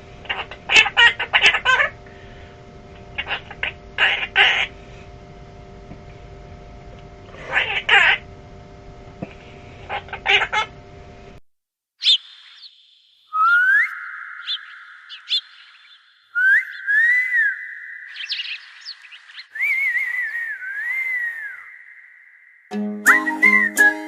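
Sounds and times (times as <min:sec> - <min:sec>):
person whistling: 0:16.4 - 0:17.7, 0:19.6 - 0:22.0, 0:22.7 - 0:24.0.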